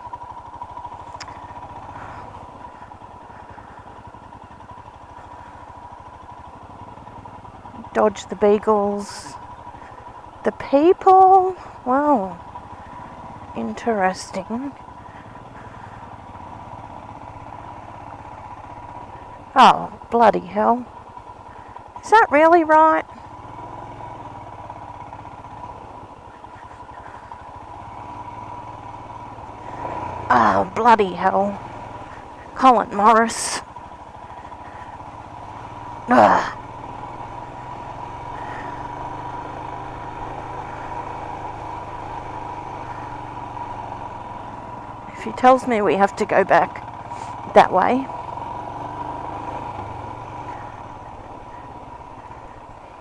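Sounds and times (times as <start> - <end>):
motorcycle engine running: 0.0 - 53.0
thin steady whine: 24.9 - 48.1.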